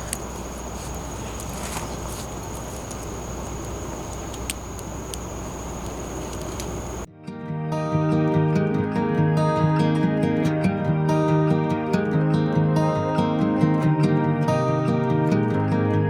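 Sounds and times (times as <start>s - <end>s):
campfire crackling: 0.0s - 7.1s
steady hiss: 0.0s - 7.1s.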